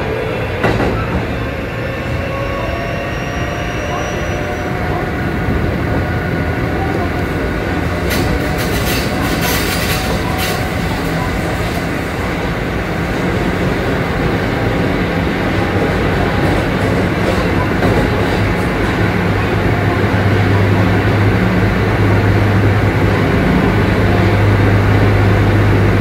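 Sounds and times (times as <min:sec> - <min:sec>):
train rolling noise: 0:00.0 - 0:26.0.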